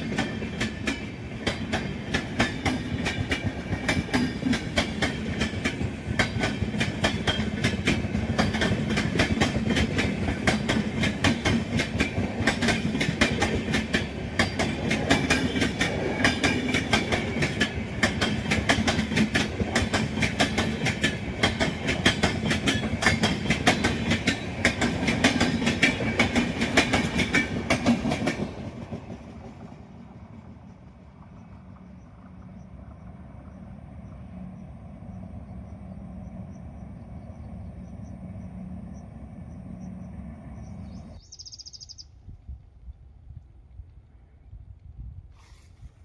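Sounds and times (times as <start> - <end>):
train wheels clattering: 0.0 - 30.5
train rumble: 0.0 - 41.6.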